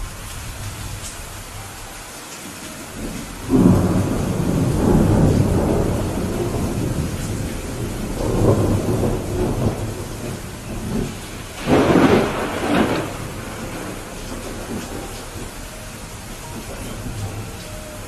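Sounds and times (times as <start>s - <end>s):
heavy rain: 0.0s - 18.0s
rolling thunder: 2.9s - 18.0s
sharp thunderclap: 3.0s - 15.5s.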